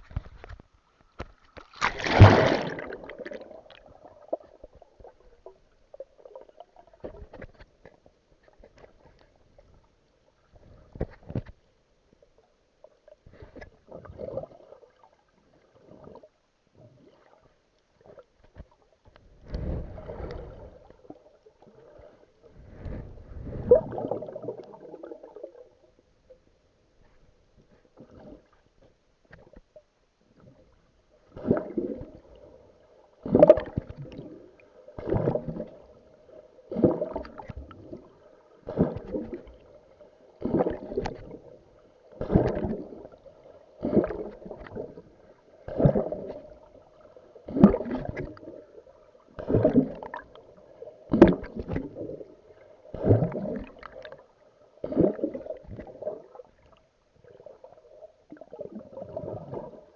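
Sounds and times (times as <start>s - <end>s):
water splashing from swim strokes: 1.5s - 4.0s.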